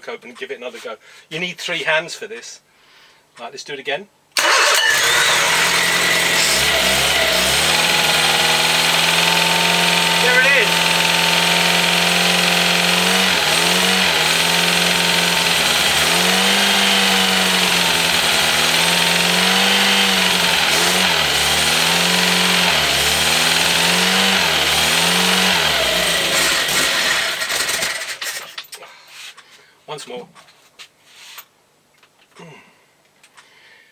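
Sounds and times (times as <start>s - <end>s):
petrol engine running: 4.4s - 28.2s.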